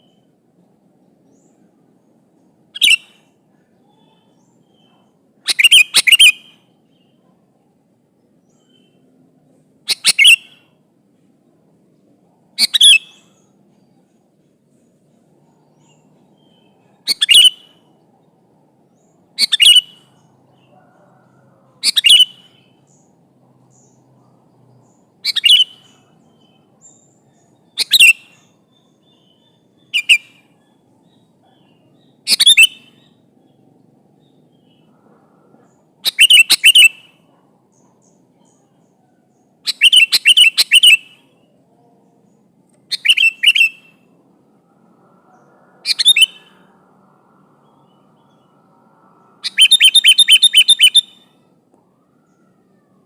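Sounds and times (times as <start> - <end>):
bulbul calling: 2.8 - 3.2, 3.8 - 7.3, 9.9 - 10.7, 12.5 - 13.5, 15.8 - 17.9, 19.0 - 21.2, 21.8 - 23.1, 24.8 - 33.6, 35.6 - 41.6, 42.7 - 44.1, 45.3 - 46.7, 49.3 - 51.4.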